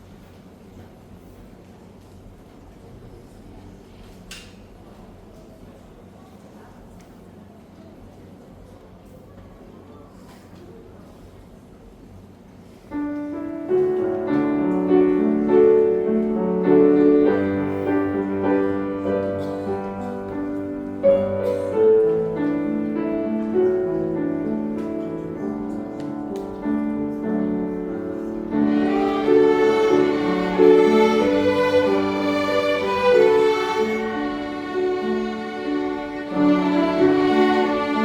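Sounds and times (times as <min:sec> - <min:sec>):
strings and piano playing hymn: 0:13.0 - 0:38.0.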